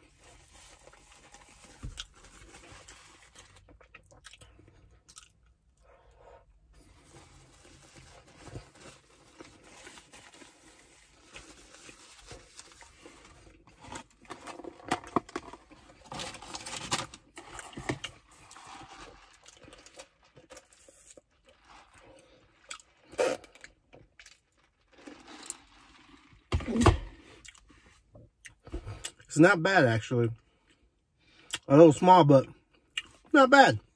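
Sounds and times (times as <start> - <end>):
chewing and mouth noises: 3.7 - 5.9.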